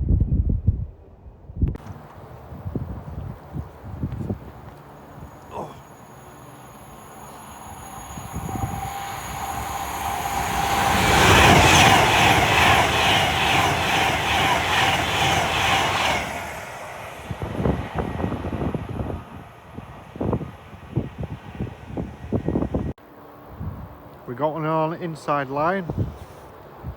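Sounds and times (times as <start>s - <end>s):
passenger train passing: 1.8s - 25.9s
wheels clattering on rails: 3.4s - 16.2s.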